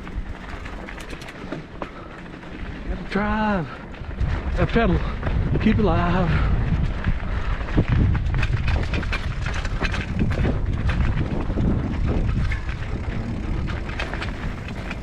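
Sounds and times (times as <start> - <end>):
bike rattling on dirt trail: 0.0 - 15.0
tyres crunching on dirt: 10.1 - 15.0.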